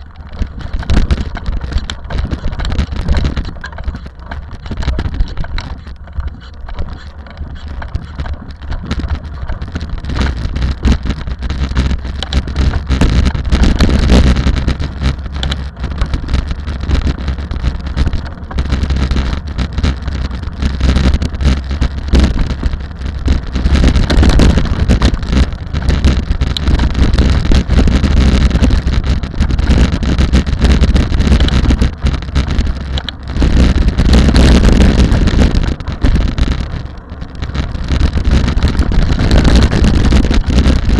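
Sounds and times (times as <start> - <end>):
rally car engine: 0.0 - 40.9
wind buffeting microphone: 0.0 - 40.9.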